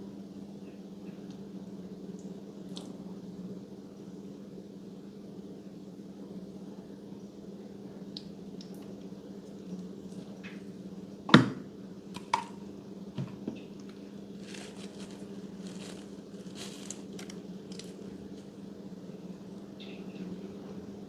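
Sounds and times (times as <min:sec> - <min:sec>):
slime squishing: 0:14.4 - 0:18.5.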